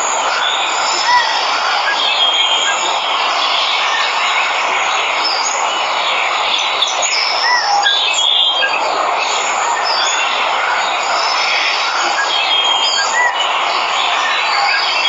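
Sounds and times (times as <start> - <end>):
rush of falling water: 0.0 - 15.0
birds chirping and whistling: 6.5 - 15.0.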